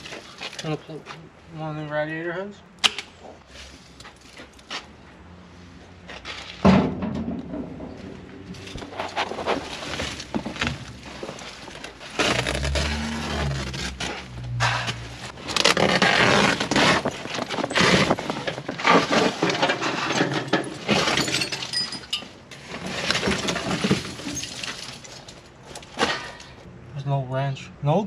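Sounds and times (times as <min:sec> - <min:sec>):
low hum: 0:12.2 - 0:16.1
metal junk clattering and clinking: 0:16.6 - 0:26.6.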